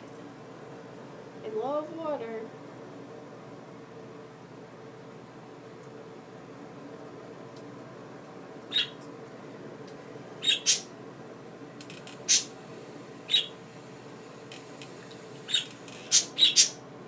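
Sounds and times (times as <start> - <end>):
steady low hum: 0.0 - 17.0
budgerigars squawking: 8.7 - 9.0, 10.4 - 10.8, 12.3 - 12.5, 13.3 - 13.5, 15.5 - 16.8.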